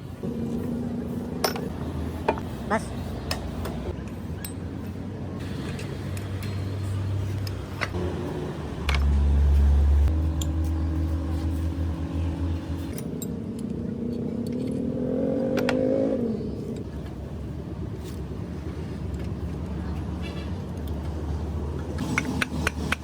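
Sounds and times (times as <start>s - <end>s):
vehicle engine revving: 5.4s - 17.0s, 21.8s - 23.0s.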